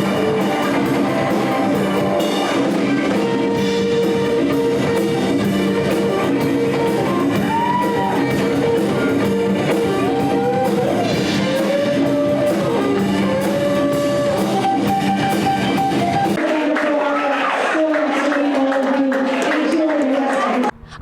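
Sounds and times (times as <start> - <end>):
electric guitar: 0.0 - 16.6
drums: 0.0 - 17.0.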